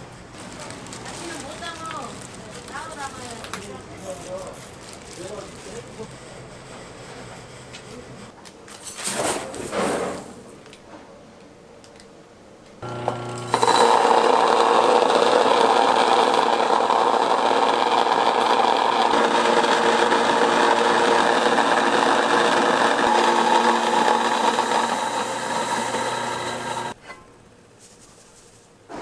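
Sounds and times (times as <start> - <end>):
kitchen machine motor humming: 12.8 - 27.0.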